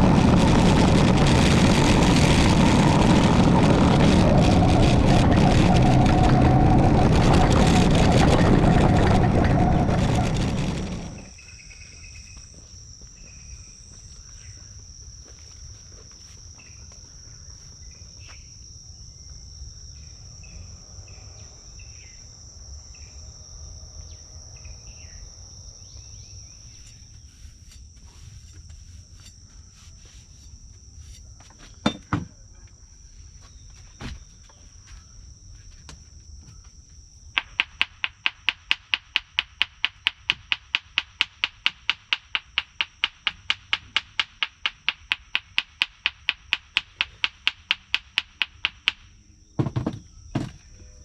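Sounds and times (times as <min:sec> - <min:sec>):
loud dense noise: 0:00.0 - 0:11.3
low rumble: 0:00.0 - 0:11.4.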